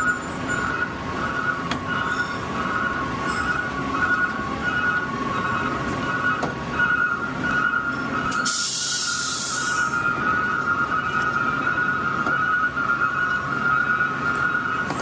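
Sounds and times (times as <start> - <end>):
two-tone high-pitched squeal: 0.0 - 15.0
air hiss: 8.4 - 9.9.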